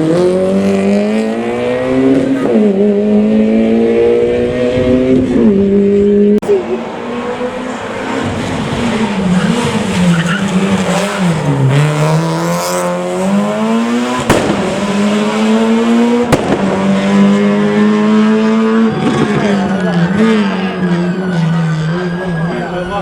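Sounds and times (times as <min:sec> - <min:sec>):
rally car engine revving: 0:00.0 - 0:23.0
sharp cracks: 0:14.1 - 0:15.3, 0:16.2 - 0:17.4.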